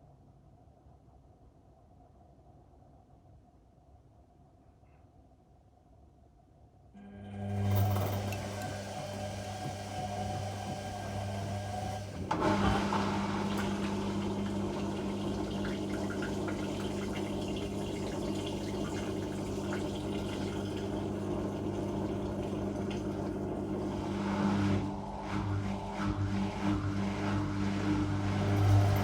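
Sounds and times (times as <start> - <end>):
washing machine hum: 7.0 - 29.0.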